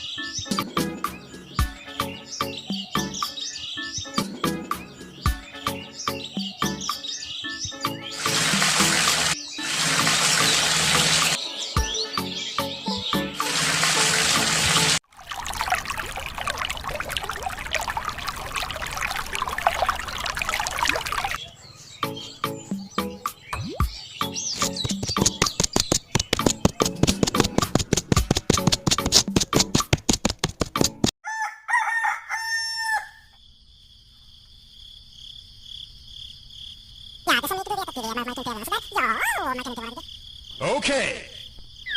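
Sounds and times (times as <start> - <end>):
music: 0.0 - 15.0, 22.0 - 25.6, 26.3 - 29.9, 30.6 - 31.1
water trickling and splashing: 8.2 - 11.4, 13.4 - 21.4
rooster crowing: 31.2 - 33.4
crickets chirring: 32.7 - 41.9.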